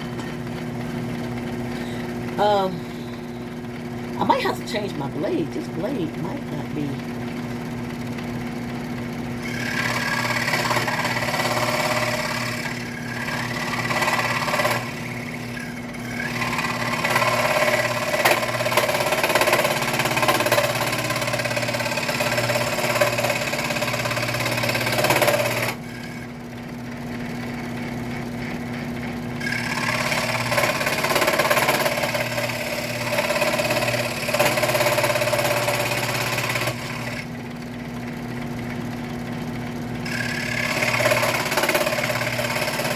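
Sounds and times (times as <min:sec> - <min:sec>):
scroll saw cutting wood: 0:09.4 - 0:26.4, 0:28.2 - 0:37.4, 0:40.0 - 0:42.9.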